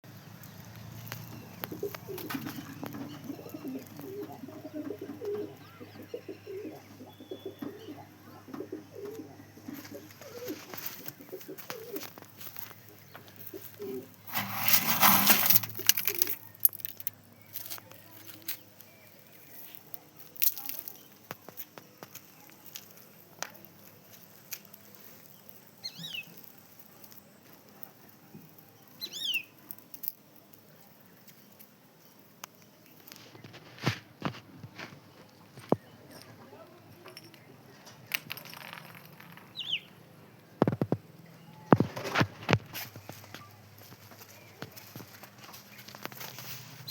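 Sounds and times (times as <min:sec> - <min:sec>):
pigeons cooing: 0:01.0 - 0:16.4.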